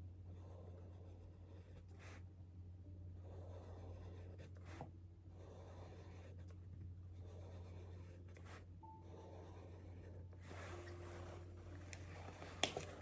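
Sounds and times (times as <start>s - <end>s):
steady low hum: 0.0s - 13.0s
pen scratching handwriting: 7.2s - 13.0s.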